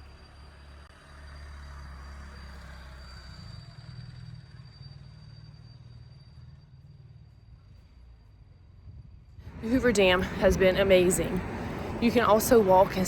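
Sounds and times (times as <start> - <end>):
vehicle engine running: 9.5 - 13.0.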